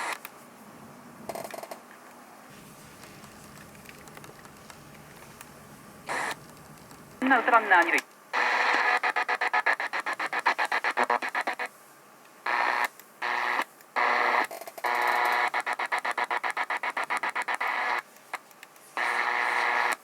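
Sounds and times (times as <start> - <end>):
radio hiss: 0.0 - 0.2, 2.5 - 20.0
radio speaker stuttering: 2.6 - 11.7.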